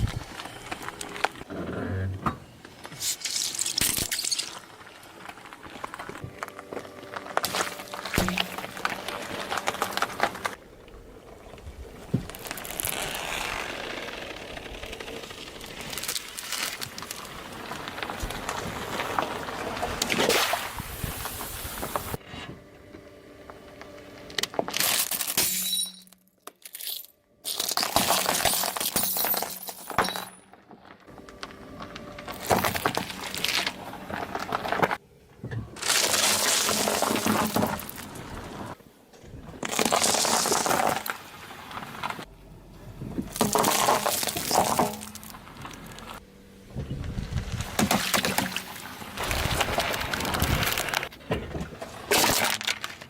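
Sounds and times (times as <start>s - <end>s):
glass breaking: 3.2s - 4.6s, 24.7s - 30.4s
tyre crushing objects: 5.3s - 10.6s, 35.7s - 38.7s, 43.2s - 46.0s.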